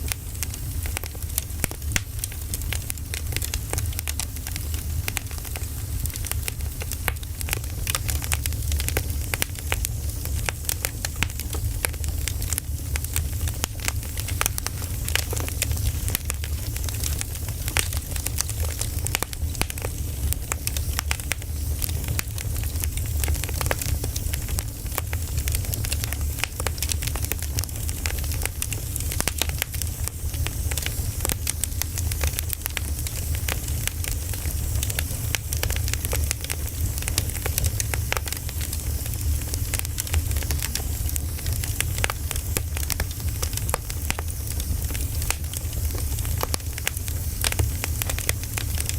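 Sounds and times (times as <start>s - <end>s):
low rumbling hiss: 0.0s - 48.9s
wood fire crackling and popping: 0.0s - 48.9s.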